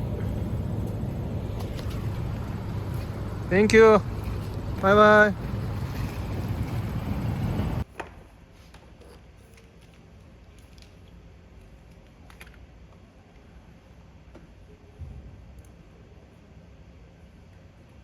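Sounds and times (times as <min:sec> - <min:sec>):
wind noise on microphone: 0:00.0 - 0:07.8.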